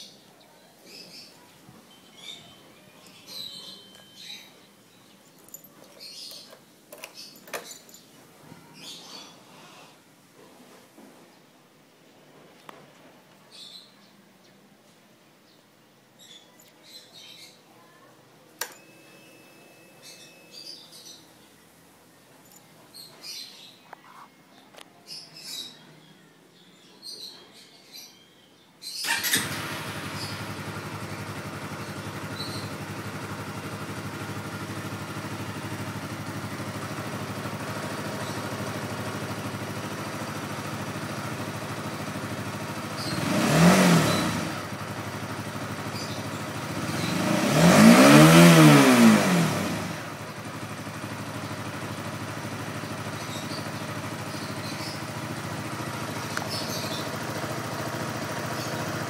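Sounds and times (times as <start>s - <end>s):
motorcycle engine starting and idling: 0.9s - 8.9s, 18.6s - 19.4s, 22.4s - 23.4s, 29.0s - 59.0s
engine revving: 29.0s - 59.0s.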